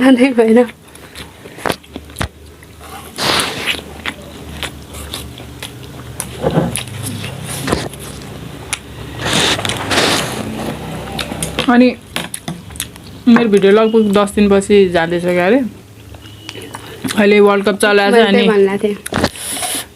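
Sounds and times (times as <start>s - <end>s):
person chewing noodles: 0.8s - 11.7s, 12.3s - 13.2s, 15.9s - 17.2s
noisy bursts: 2.9s - 12.3s.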